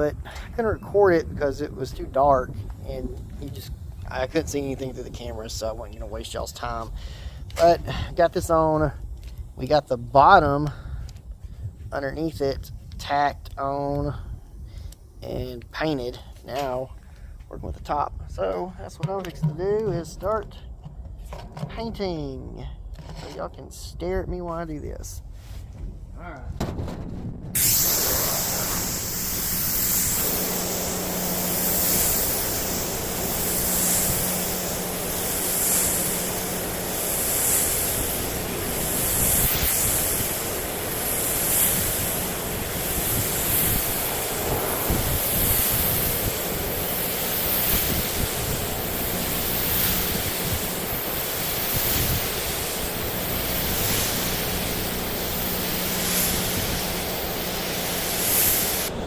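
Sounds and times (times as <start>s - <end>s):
steady low hum: 24.9s - 59.0s
paint spray hissing: 27.6s - 59.0s.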